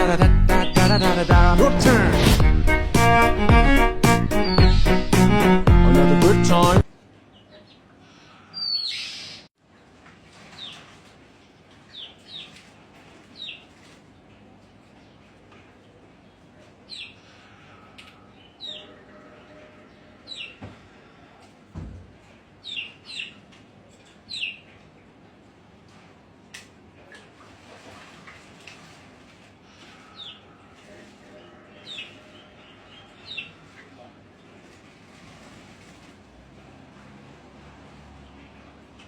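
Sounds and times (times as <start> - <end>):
rough rush of sound: 0.8 - 4.5
dull low thump: 2.2 - 3.8
songbirds chirping: 11.5 - 21.4, 29.6 - 35.2.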